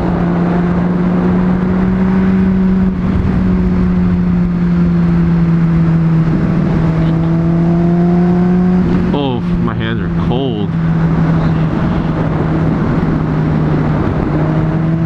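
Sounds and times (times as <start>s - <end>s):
motorcycle engine cruising: 0.0s - 15.0s
wind rush: 10.9s - 15.0s.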